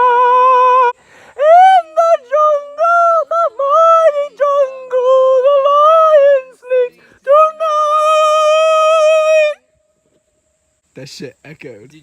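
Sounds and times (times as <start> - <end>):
person singing falsetto: 0.0 - 9.6.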